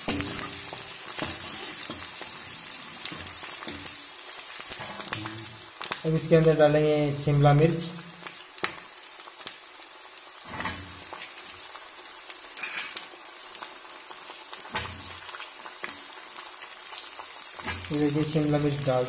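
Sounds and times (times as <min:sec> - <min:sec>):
dull thumps in pan: 0:00.0 - 0:00.6
vegetables frying sizzle: 0:00.0 - 0:19.0.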